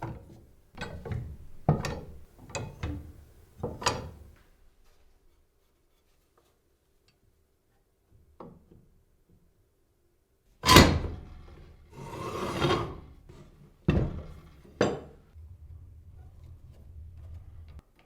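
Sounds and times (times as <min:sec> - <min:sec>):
sliding scrape: 0:11.9 - 0:13.6.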